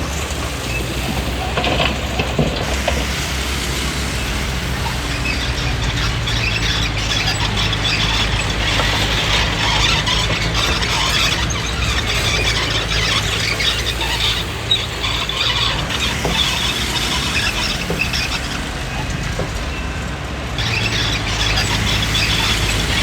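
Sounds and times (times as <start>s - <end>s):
diesel engine running: 0.0s - 23.0s
steel tracks squealing: 0.0s - 23.0s.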